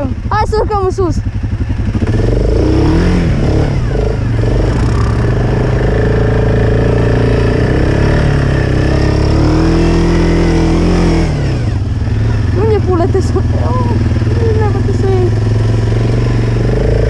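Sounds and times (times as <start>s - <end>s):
atv engine running hard: 0.0s - 17.0s.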